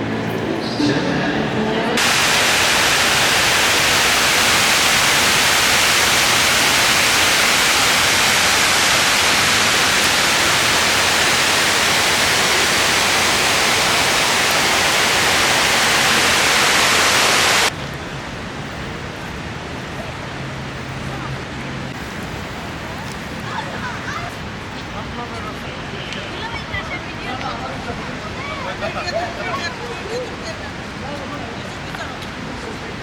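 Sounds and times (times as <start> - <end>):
loud steady hiss: 0.0 - 17.8.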